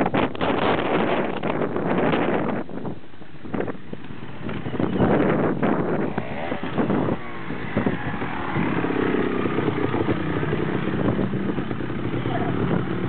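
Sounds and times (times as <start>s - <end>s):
motorcycle engine revving: 4.2s - 13.0s.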